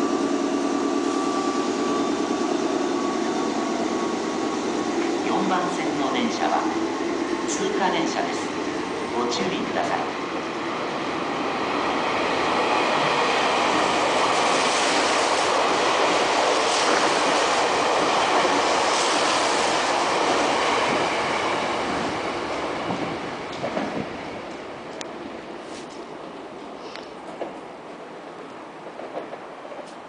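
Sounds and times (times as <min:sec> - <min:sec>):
train passing through station: 0:00.0 - 0:30.0.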